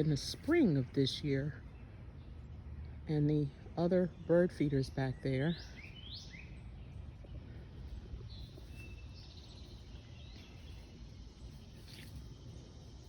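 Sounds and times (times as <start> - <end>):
low outdoor rumble: 0.0 - 13.0
small birds chirping: 0.0 - 13.0.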